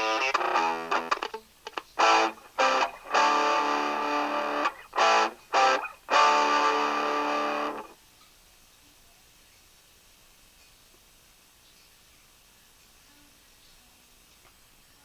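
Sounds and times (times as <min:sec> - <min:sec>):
distorted electric guitar chords: 0:00.0 - 0:08.0
faint hiss: 0:00.0 - 0:15.0.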